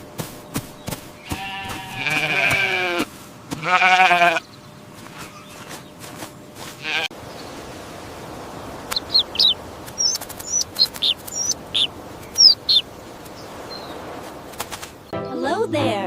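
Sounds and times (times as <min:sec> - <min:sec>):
quavering bleats: 0:01.2 - 0:04.5, 0:06.8 - 0:07.2.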